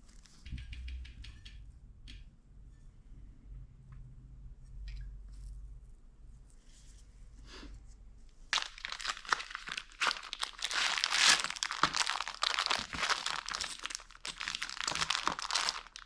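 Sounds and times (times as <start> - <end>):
packaging crinkling: 8.5 - 16.0.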